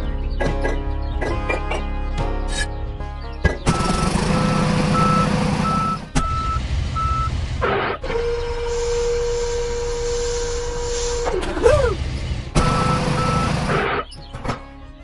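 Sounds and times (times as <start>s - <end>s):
reversing alarm beeping: 3.7s - 11.1s, 12.6s - 14.0s.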